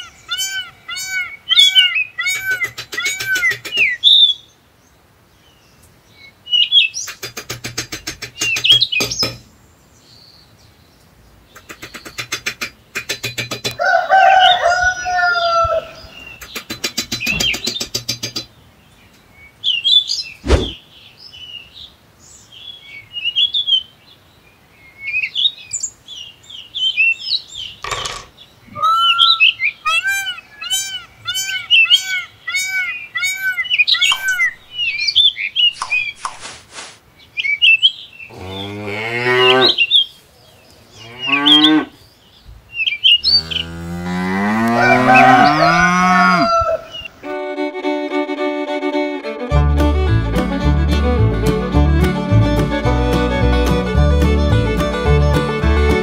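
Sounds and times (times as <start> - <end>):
birds chirping: 0.0 - 47.3
sharp knocks: 7.2 - 9.5, 16.6 - 18.4
cow mooing: 38.3 - 39.8, 41.0 - 42.0, 43.3 - 46.6.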